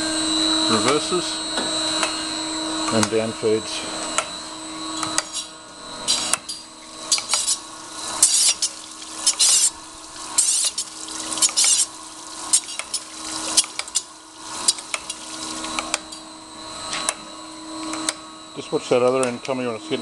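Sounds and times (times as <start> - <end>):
grinder drive whine: 0.0 - 20.0
grinding wheel hissing: 5.2 - 16.2.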